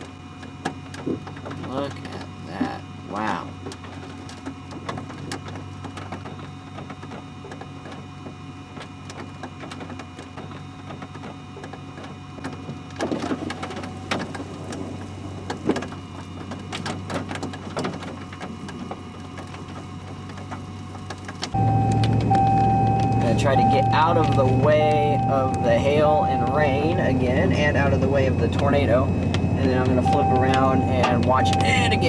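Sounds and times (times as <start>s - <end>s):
vehicle interior hum: 0.0s - 32.0s
steady whine: 12.6s - 32.0s.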